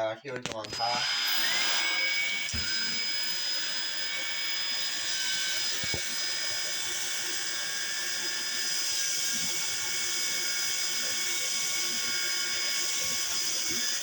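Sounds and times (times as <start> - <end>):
vacuum cleaner running: 0.6 - 14.0.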